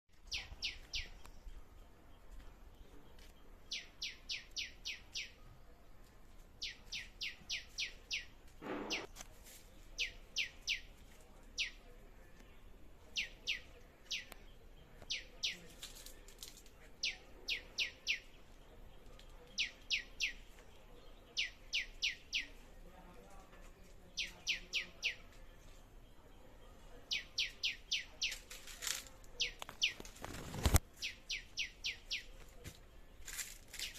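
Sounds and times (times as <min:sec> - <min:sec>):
songbird singing: 0:00.1 - 0:33.9.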